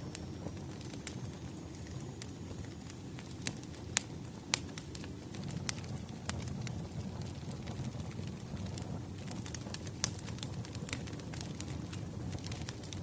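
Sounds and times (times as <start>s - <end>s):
sharp pops from fire: 0.0s - 13.0s
wood fire crackling: 0.0s - 13.0s.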